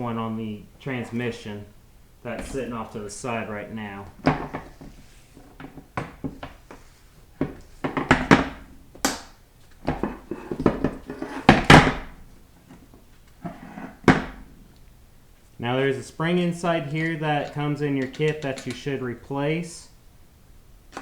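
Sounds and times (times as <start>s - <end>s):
metal parts clattering on workbench: 16.9s - 18.9s.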